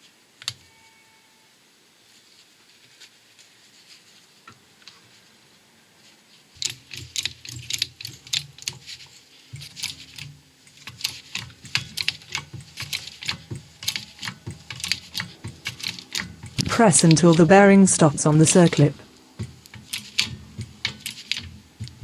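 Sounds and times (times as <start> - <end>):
press pump handle clicking: 6.6 - 17.6, 18.3 - 22.0.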